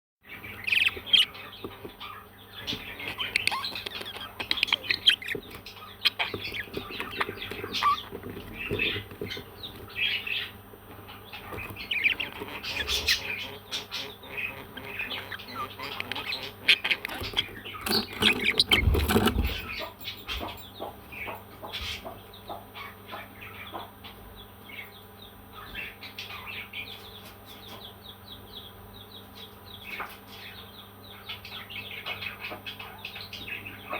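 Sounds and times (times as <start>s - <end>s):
parrots chirping and squawking: 0.4s - 22.1s.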